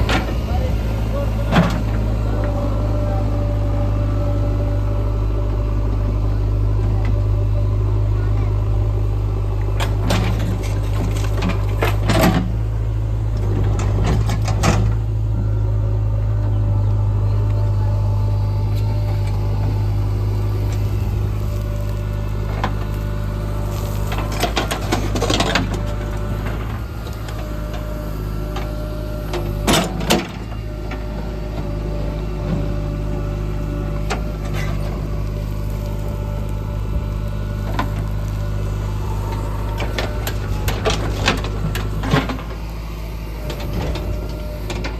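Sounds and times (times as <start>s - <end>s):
diesel engine drone: 0.0s - 44.9s
soil and stones rattling: 33.5s - 44.9s.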